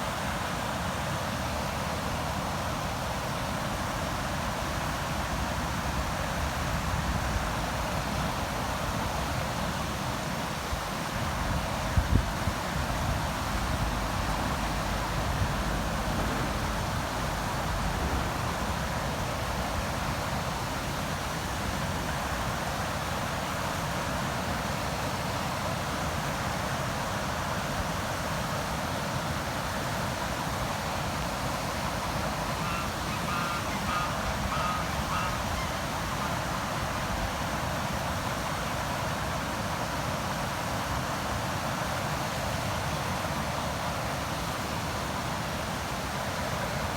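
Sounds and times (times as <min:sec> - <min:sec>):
river water rushing: 0:00.0 - 0:46.9
brief bird calls: 0:32.4 - 0:36.7.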